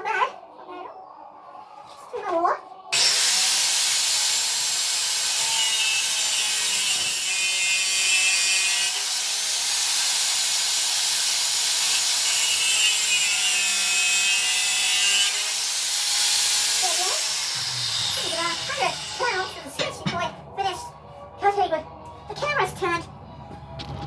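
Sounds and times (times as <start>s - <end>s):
power tool cutting steel: 2.9s - 20.2s.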